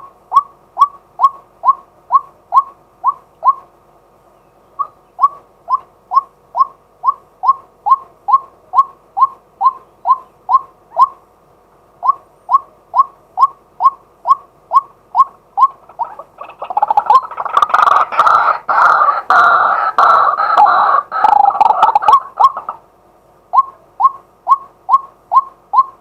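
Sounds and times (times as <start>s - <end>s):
waterhen calling: 12.0s - 22.9s.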